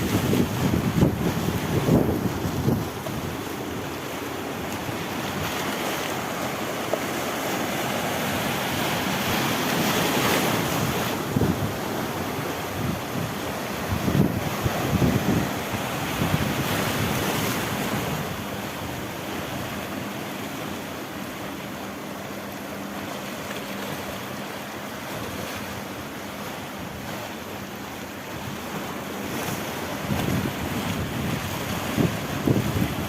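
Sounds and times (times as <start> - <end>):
wind buffeting microphone: 0.0 - 4.0, 8.3 - 19.8, 29.3 - 33.0
sea waves breaking on rocks: 0.0 - 33.0.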